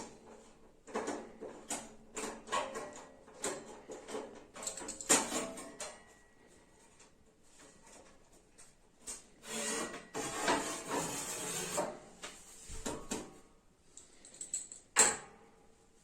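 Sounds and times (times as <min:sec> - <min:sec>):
metal plate scraping: 0:09.4 - 0:12.2.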